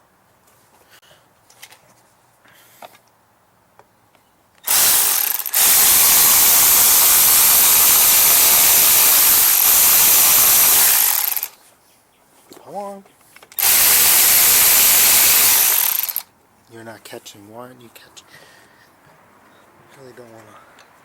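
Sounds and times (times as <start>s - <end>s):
cordless power tool driving bolt: 4.6s - 11.6s, 13.5s - 16.3s.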